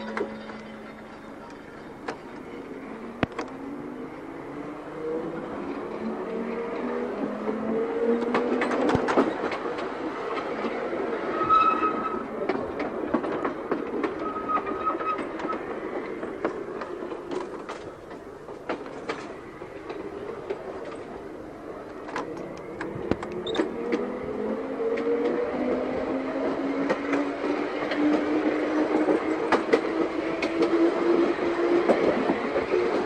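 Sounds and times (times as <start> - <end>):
tram wheel squeals: 0.0 - 4.3, 8.5 - 18.2, 21.7 - 33.0
wheels clicking over rail joints: 6.3 - 33.0.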